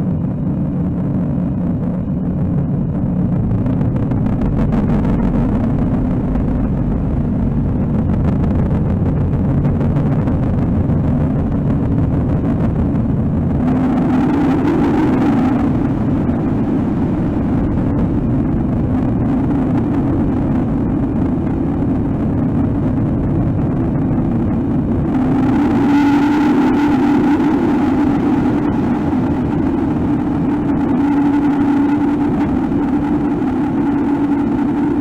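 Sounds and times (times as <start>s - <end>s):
loud low rumbling drone: 0.0s - 35.0s.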